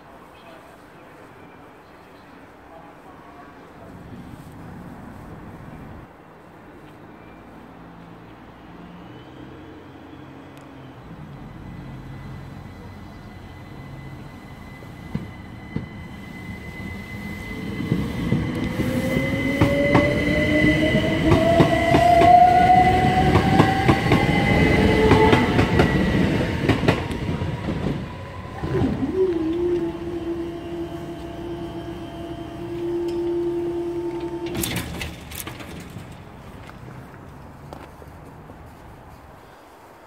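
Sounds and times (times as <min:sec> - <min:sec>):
train motors whining: 0:11.1 - 0:36.8
train wheels clicking over rail joints: 0:28.6 - 0:37.1.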